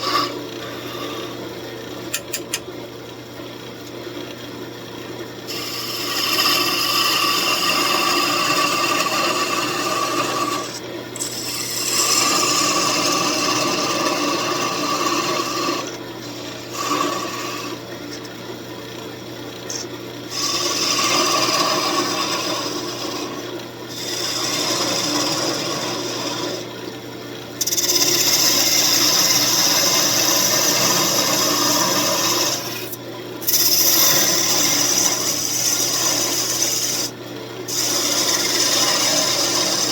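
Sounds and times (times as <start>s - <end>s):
wood lathe running: 0.0s - 2.3s, 5.5s - 18.2s, 19.7s - 26.8s, 27.5s - 39.9s
rough rubbing on wood: 33.5s - 37.1s.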